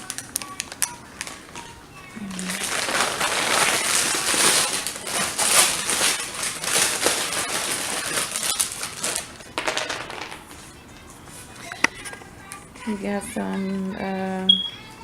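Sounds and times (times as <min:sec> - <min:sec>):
packaging crinkling: 0:00.0 - 0:10.5.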